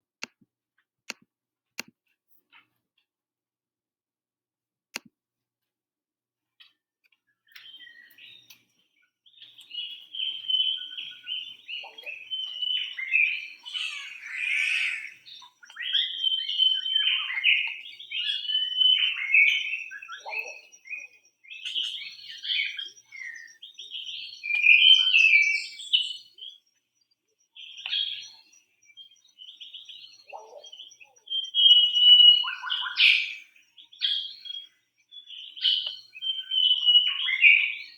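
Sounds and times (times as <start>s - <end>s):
birds chirping and calling: 7.5s - 8.7s, 9.3s - 37.9s.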